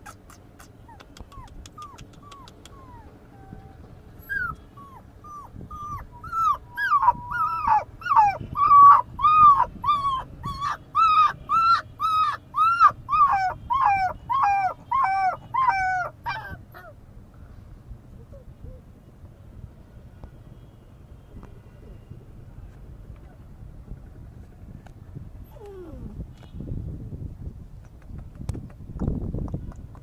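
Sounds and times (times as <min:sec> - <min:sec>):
puppy whimpering: 0:00.0 - 0:17.0, 0:25.4 - 0:26.2.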